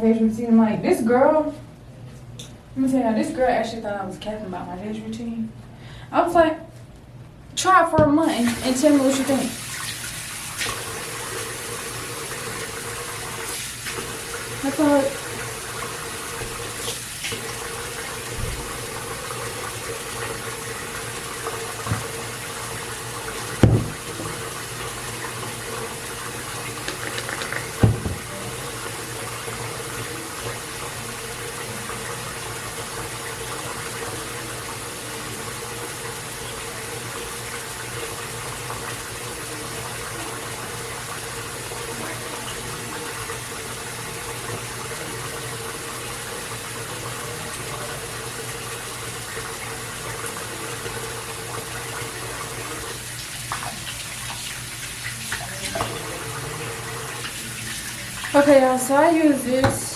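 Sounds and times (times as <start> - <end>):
sink faucet running: 8.0 - 59.9
short knocks: 23.6 - 24.2, 27.2 - 28.3.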